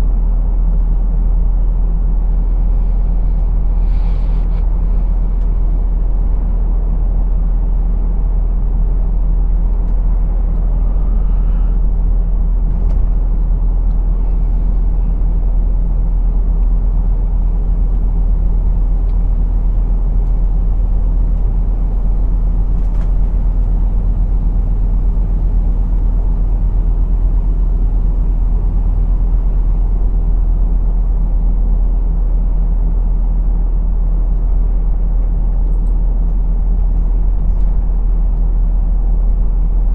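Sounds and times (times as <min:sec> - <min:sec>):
road noise: 0:00.0 - 0:26.4
truck diesel engine rumbling: 0:00.0 - 0:39.9.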